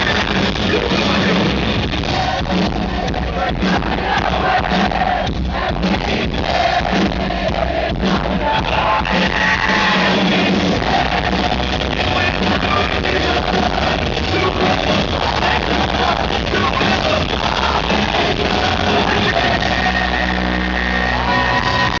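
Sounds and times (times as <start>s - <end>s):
live rock band playing: 0.0s - 22.0s
person singing: 7.9s - 22.0s.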